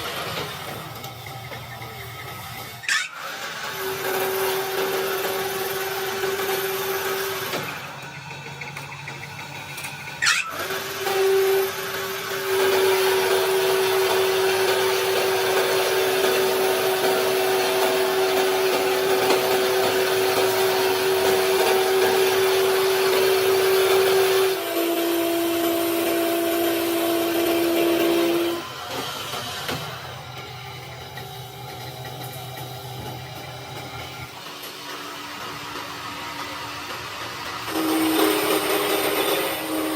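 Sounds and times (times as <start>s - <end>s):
power tool motor humming: 2.2s - 8.2s, 9.7s - 30.4s, 35.2s - 39.9s.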